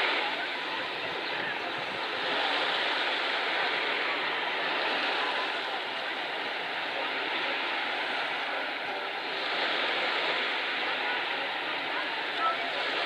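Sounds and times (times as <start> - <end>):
sea surf washing onto beach: 0.0 - 13.0.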